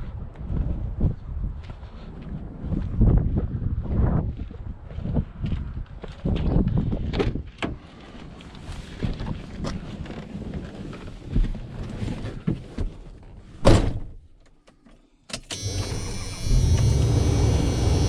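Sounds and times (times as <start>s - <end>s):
truck engine drone: 15.5s - 18.0s.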